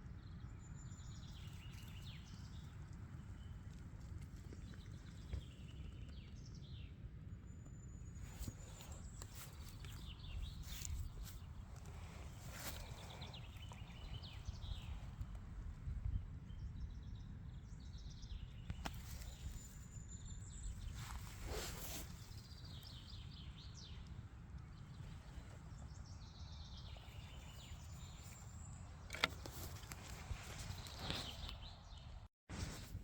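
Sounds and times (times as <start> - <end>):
bird calls: 7.7 - 15.4, 16.5 - 32.2.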